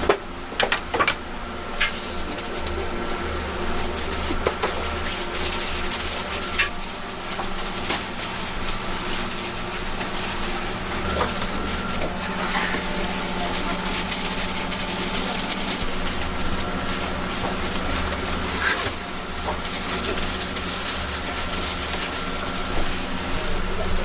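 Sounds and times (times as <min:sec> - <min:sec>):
mechanical hum with low rumble: 0:00.0 - 0:24.0.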